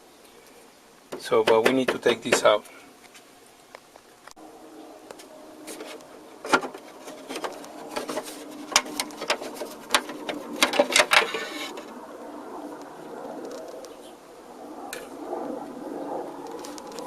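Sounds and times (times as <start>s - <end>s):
turntable parts clicking and knocking: 1.1s - 2.6s, 6.4s - 11.9s.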